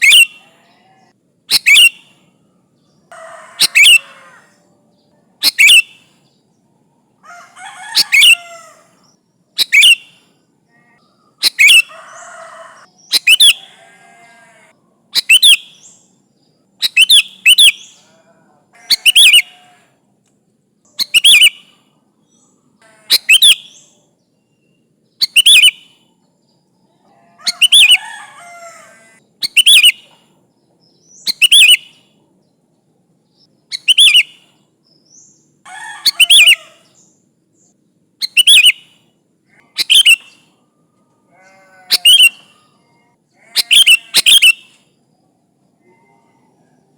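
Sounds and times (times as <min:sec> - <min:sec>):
bird chattering: 0:00.0 - 0:00.8, 0:01.5 - 0:02.1, 0:03.1 - 0:04.4, 0:05.4 - 0:06.1, 0:09.6 - 0:10.2, 0:10.8 - 0:15.8, 0:18.8 - 0:19.8, 0:20.9 - 0:21.7, 0:22.8 - 0:23.9, 0:25.2 - 0:25.8, 0:27.4 - 0:30.2, 0:33.7 - 0:34.5, 0:35.7 - 0:37.0, 0:38.2 - 0:38.9, 0:39.5 - 0:40.6, 0:41.4 - 0:42.8, 0:43.4 - 0:44.8
bird calling high phrase: 0:00.0 - 0:02.0, 0:03.0 - 0:05.9, 0:07.2 - 0:15.8, 0:16.8 - 0:19.8, 0:22.4 - 0:24.1, 0:27.1 - 0:30.2, 0:35.7 - 0:37.0, 0:39.5 - 0:40.6, 0:41.3 - 0:44.8.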